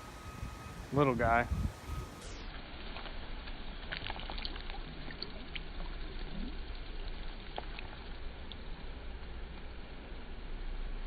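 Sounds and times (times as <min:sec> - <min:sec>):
wind buffeting microphone: 0:00.3 - 0:02.2.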